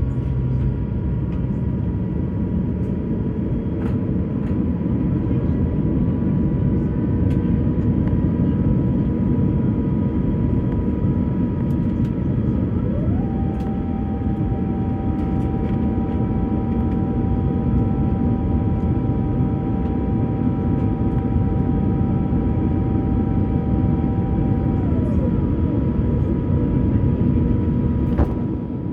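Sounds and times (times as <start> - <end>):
engine whine: 0.0 - 28.9
jet engine cabin rumble: 0.0 - 28.9
faint steady tones: 10.1 - 25.4.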